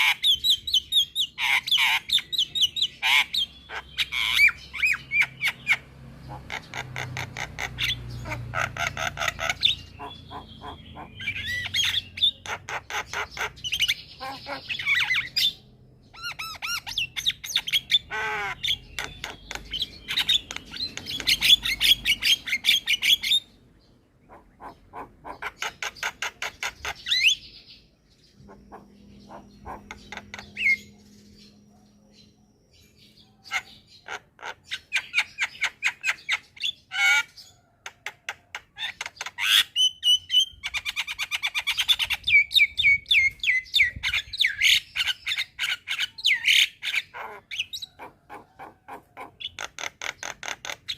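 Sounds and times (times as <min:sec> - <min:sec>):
myna chattering and whistling: 0:28.4 - 0:31.7.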